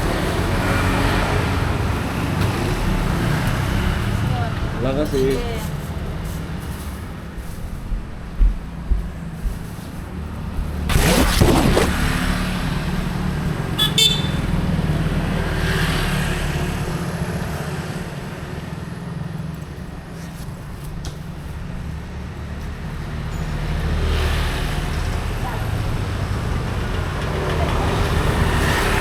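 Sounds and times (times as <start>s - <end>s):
road traffic engines: 0.0s - 7.7s, 12.0s - 29.0s.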